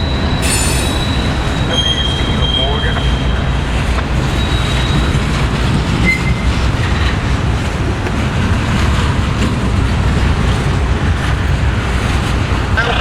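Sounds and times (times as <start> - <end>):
high-pitched wheel squeal: 0.0 - 3.6, 4.2 - 6.6
train wheels rumbling on rail: 0.0 - 13.0.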